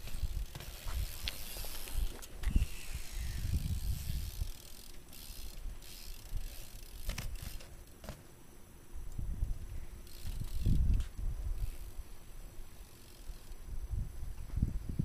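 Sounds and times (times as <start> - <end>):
bike freewheel ratchet ticking: 0.0 - 8.2, 9.5 - 12.0, 12.8 - 13.7.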